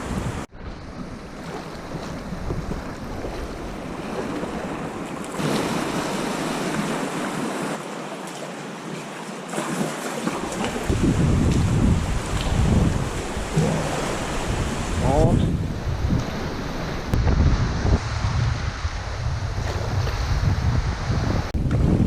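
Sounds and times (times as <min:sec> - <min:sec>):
wind buffeting microphone: 0:00.0 - 0:07.8, 0:10.5 - 0:22.0
sea waves washing: 0:00.0 - 0:21.6.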